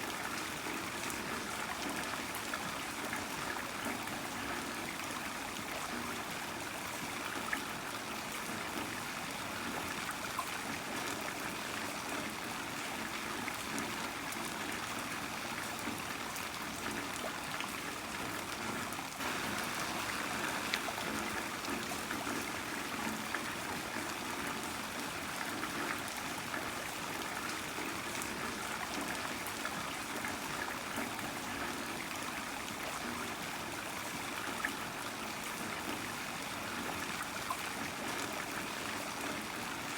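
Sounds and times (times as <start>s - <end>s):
trickling runoff: 0.0s - 39.9s
heavy rain falling: 19.2s - 24.2s.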